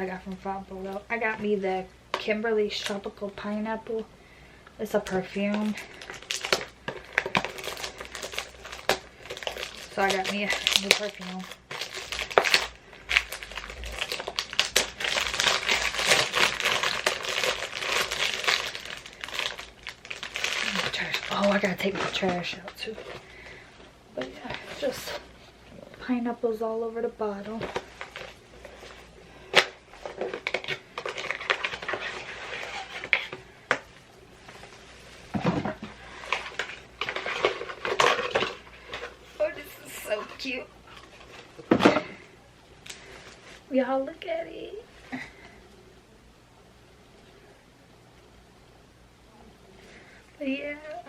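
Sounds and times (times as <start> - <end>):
packaging crinkling and rustling: 4.9 - 25.6, 27.4 - 43.7.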